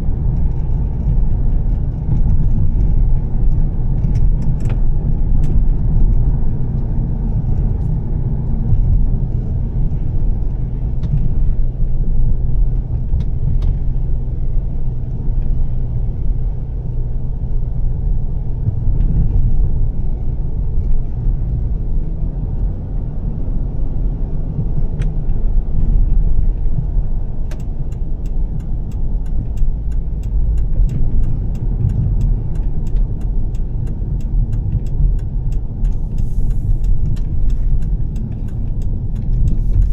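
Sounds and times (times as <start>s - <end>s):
car engine and road rumble: 0.0s - 39.9s
quick sharp ticks: 27.5s - 39.9s.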